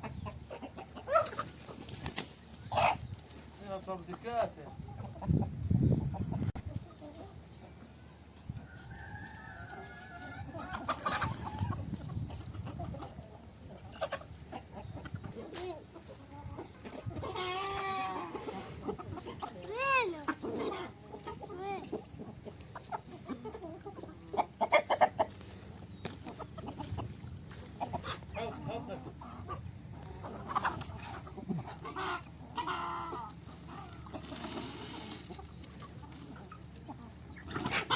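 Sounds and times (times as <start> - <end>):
chicken drawn-out calls: 0.0 - 37.9
chickens clucking: 0.0 - 37.9.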